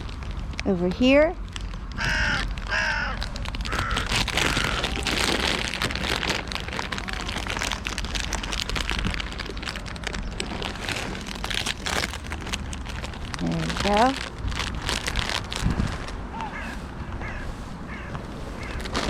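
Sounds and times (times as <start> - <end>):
nuts pouring onto ground: 2.1 - 16.0.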